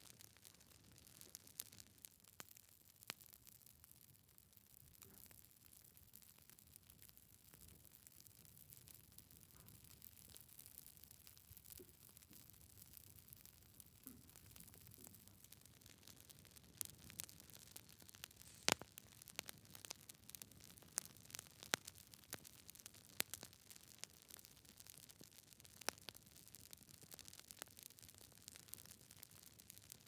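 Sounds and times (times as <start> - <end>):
wood fire crackling: 0.0 - 30.0
faint hiss: 18.3 - 19.0.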